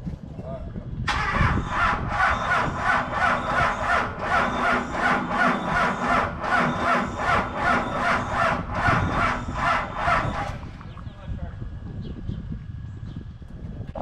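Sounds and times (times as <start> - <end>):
diesel engine cranking slowly: 1.0 - 12.1.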